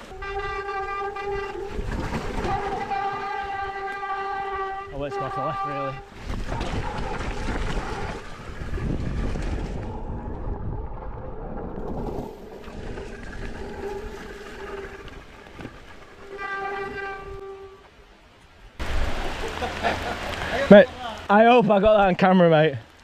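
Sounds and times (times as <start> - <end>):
bike rumbling and rattling: 0.0 - 4.9, 6.0 - 17.6.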